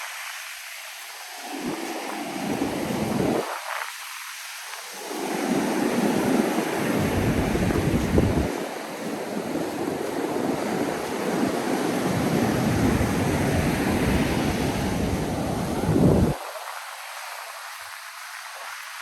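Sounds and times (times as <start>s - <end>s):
ocean surf on beach: 0.0s - 19.0s
wind buffeting microphone: 1.4s - 3.8s, 5.0s - 16.4s.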